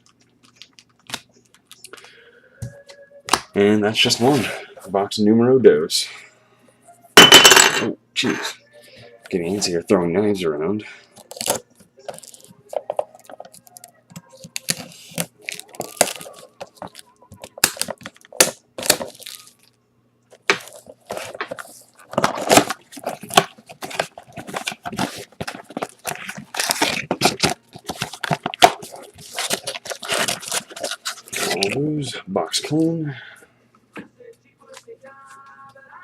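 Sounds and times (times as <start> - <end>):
plastic wrap crinkling and tearing: 13.2 - 19.8, 20.4 - 31.8
knife cutting plastic wrap: 14.5 - 19.5, 20.4 - 31.8.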